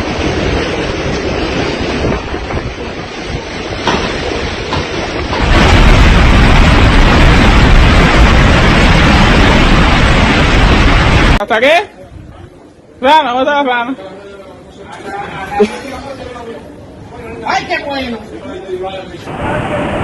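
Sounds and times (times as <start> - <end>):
deep rumble: 0.0 - 11.4
wind buffeting microphone: 0.0 - 11.4
heavy rain: 0.0 - 13.0, 15.2 - 20.0.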